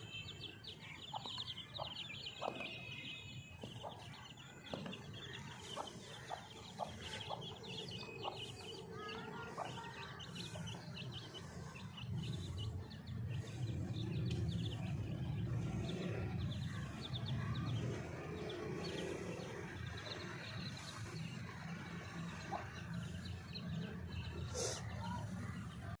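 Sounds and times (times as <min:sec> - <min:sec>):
chicks cheeping: 0:00.0 - 0:24.8
hen clucking: 0:05.4 - 0:08.6.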